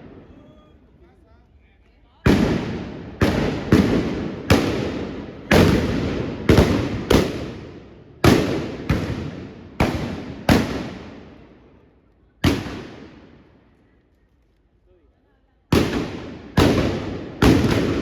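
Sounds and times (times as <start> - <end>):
blunderbuss shots with echo: 2.3 - 11.6, 12.4 - 13.5, 15.7 - 18.0.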